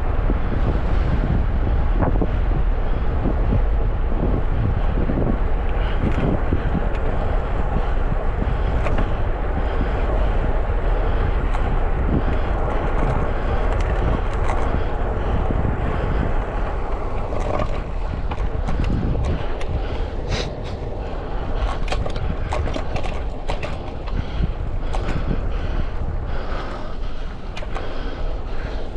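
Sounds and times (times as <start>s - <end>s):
road noise: 0.0s - 28.9s
wind buffeting microphone: 0.0s - 28.9s
sharp clicks and ticks: 11.3s - 15.4s, 16.1s - 26.0s, 26.6s - 28.2s.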